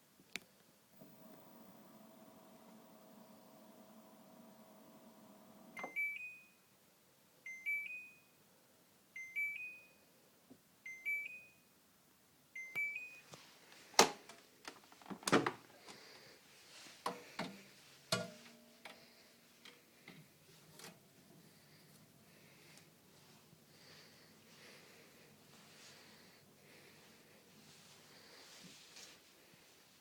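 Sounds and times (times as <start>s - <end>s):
washing machine hum: 1.0s - 6.2s.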